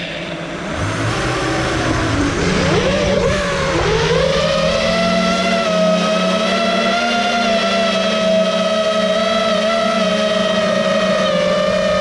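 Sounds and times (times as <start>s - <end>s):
quadcopter motors whining: 0.0s - 6.0s.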